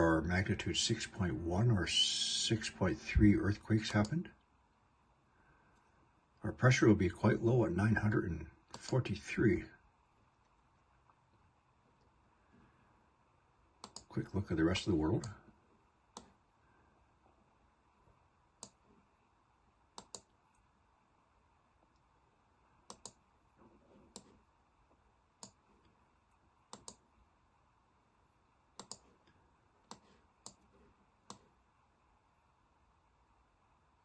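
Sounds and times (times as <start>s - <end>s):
low steady hiss: 0.0s - 34.0s
computer clicks: 3.8s - 4.2s, 13.8s - 14.1s, 19.9s - 20.4s, 22.8s - 23.2s, 25.4s - 25.6s, 26.7s - 27.0s, 28.8s - 29.1s, 29.8s - 31.5s.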